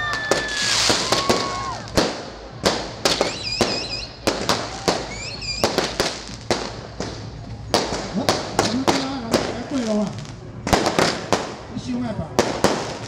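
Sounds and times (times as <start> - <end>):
fireworks banging: 0.0 - 13.0
high warbling whistle: 3.2 - 4.2, 4.8 - 5.8.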